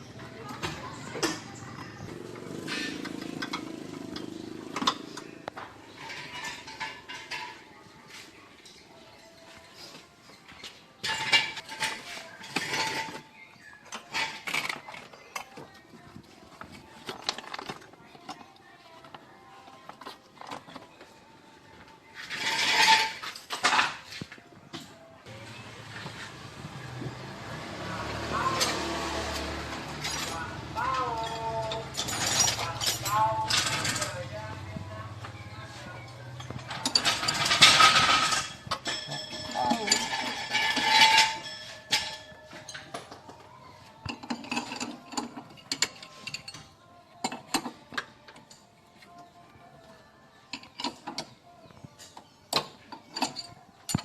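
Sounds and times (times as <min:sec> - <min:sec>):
metal tools clinking: 0:02.6 - 0:07.7, 0:11.0 - 0:15.8, 0:22.2 - 0:24.2, 0:28.3 - 0:34.6, 0:35.2 - 0:43.4, 0:44.0 - 0:48.7, 0:50.5 - 0:54.0.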